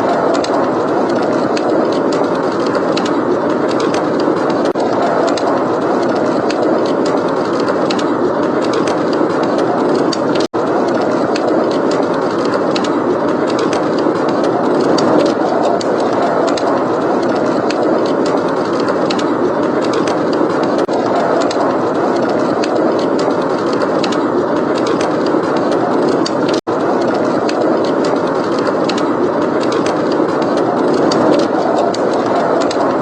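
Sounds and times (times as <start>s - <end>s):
blizzard wind blowing: 0.0s - 33.0s
fireplace crackling: 0.0s - 33.0s.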